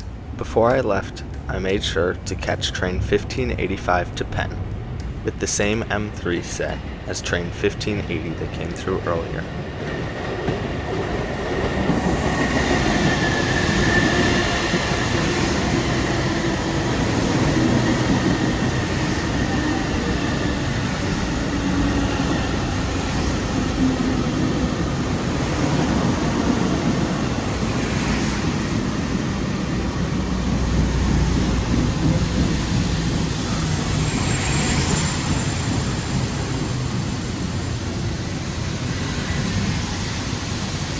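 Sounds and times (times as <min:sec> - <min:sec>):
train wheels rumbling on rail: 0:00.0 - 0:40.9
thin high whine: 0:33.4 - 0:37.2.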